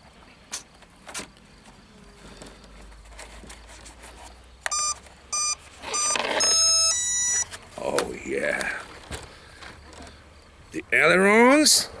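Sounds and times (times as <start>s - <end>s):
short electronic beeps: 4.7s - 7.5s.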